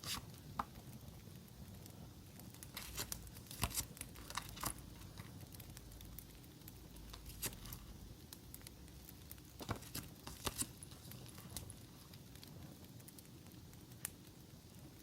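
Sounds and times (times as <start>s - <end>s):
paper crinkling: 0.0s - 0.7s, 2.6s - 5.5s, 7.1s - 7.9s, 9.5s - 11.8s
campfire crackling: 0.0s - 15.0s.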